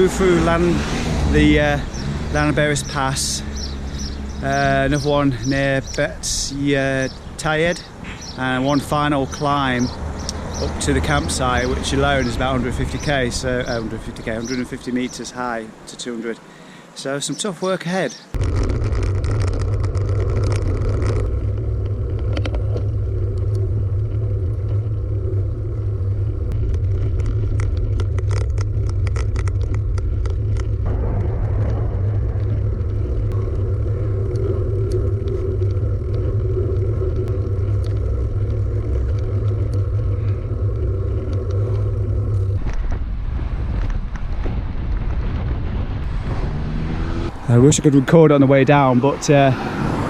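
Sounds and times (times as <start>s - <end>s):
wind rumbling on microphone: 0.0s - 15.4s, 18.2s - 50.0s
bike ticks and clicks: 1.8s - 6.1s, 6.9s - 15.1s, 18.4s - 43.0s.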